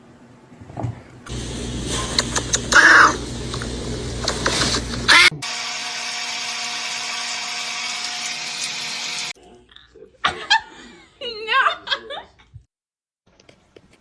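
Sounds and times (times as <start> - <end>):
small electric motor running: 1.3 - 9.3.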